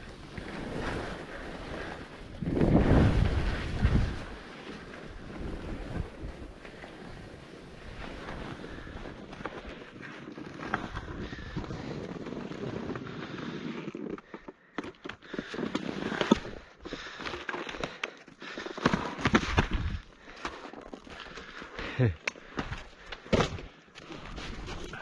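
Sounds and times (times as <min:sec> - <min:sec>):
wind buffeting microphone: 0:02.3 - 0:04.4.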